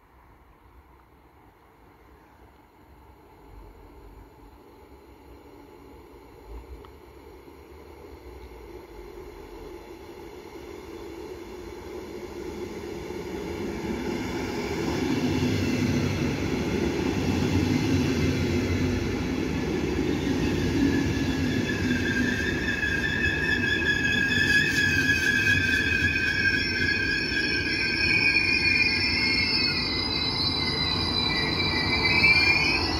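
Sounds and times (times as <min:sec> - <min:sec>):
train wheels rumbling on rails: 0:11.3 - 0:32.9
high brake squeal: 0:19.8 - 0:32.9.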